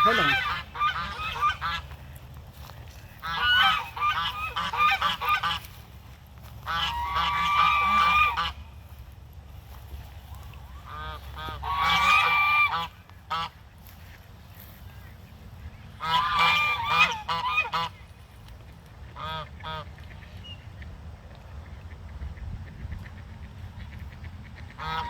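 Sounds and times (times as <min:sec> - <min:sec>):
waterfowl honking: 0:00.0 - 0:02.0, 0:03.1 - 0:09.0, 0:10.4 - 0:14.8, 0:16.0 - 0:18.0, 0:19.1 - 0:20.3, 0:23.1 - 0:25.0.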